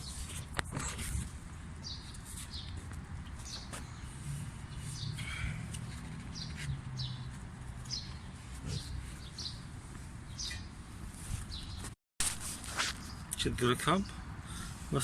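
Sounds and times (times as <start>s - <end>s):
small bird chirping: 4.7s - 9.7s, 10.3s - 10.8s.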